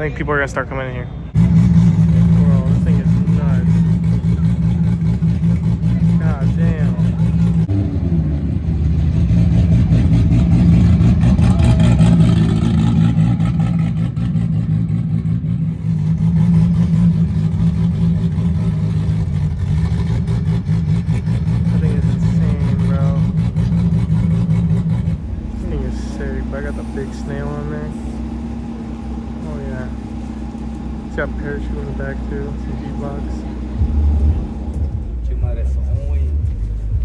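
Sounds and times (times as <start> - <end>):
drag car engine idling roughly: 1.4 - 7.7, 8.8 - 37.0.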